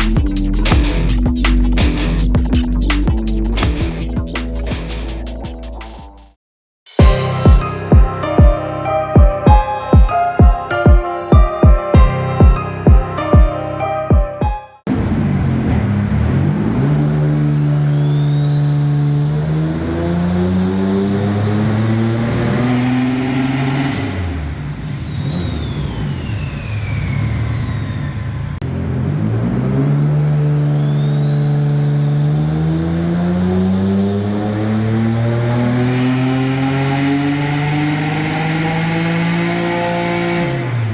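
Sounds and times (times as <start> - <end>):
high turbo whine: 14.9 - 40.9
turbo engine revving on dyno: 14.9 - 40.9.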